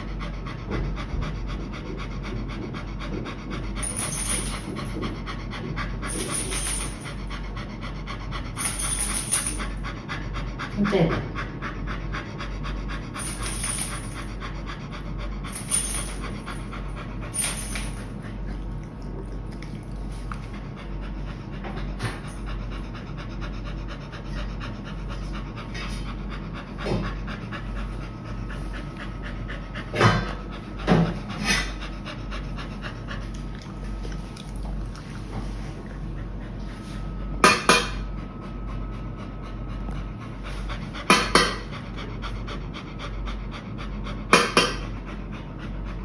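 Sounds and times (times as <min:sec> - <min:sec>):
dog panting: 0:00.0 - 0:46.0.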